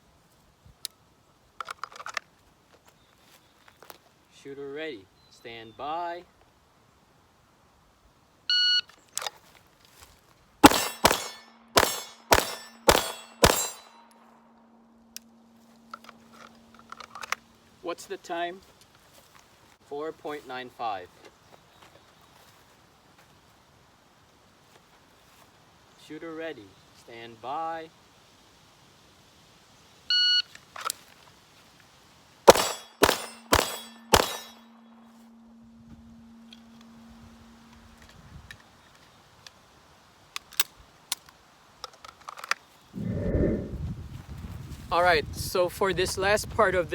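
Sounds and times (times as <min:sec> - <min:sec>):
pistol shots: 0:10.6 - 0:14.0, 0:32.5 - 0:34.7
steel targets clanging: 0:10.6 - 0:14.0, 0:32.5 - 0:34.9
steel plate ringing: 0:10.6 - 0:14.1, 0:32.5 - 0:35.6.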